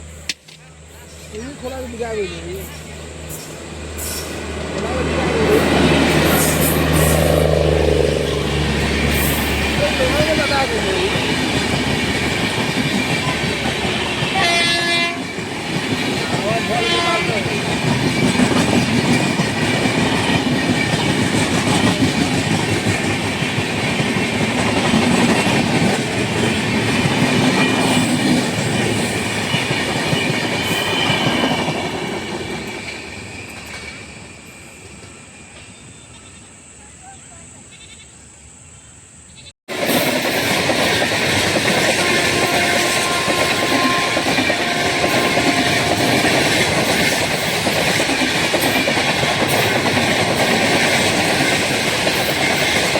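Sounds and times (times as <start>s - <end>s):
train wheels clattering over rail joints: 15.4s - 34.2s, 39.8s - 52.9s.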